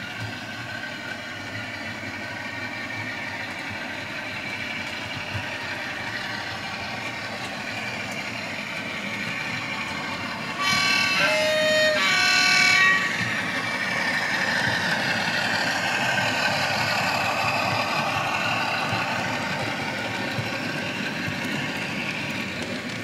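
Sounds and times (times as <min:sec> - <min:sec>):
model train engine sound: 0:00.0 - 0:23.0
model train wheels rumbling: 0:00.0 - 0:23.0.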